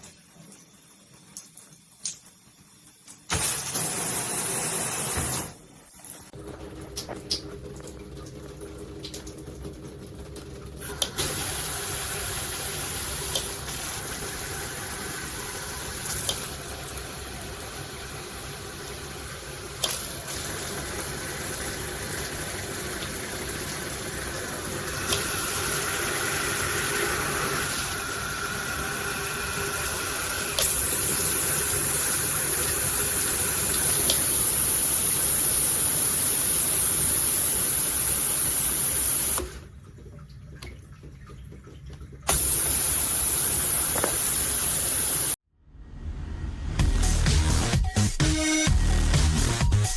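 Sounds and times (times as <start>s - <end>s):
shower head spraying water: 10.8s - 39.5s, 42.3s - 45.4s.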